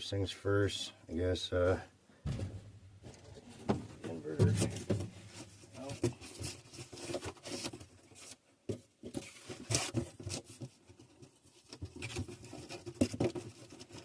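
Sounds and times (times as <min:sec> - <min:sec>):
packaging rustling and scraping: 0:03.1 - 0:14.0.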